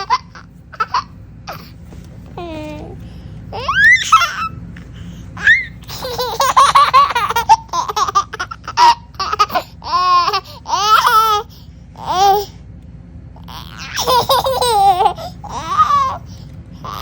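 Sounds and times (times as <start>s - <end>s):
young child laughing: 3.5s - 4.7s, 5.4s - 11.4s, 13.6s - 16.3s.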